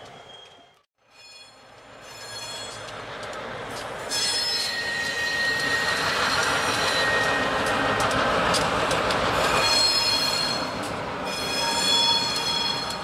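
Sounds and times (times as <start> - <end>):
freight locomotives rolling past: 0.0 - 13.0
train wheels squealing on rails: 0.0 - 13.0.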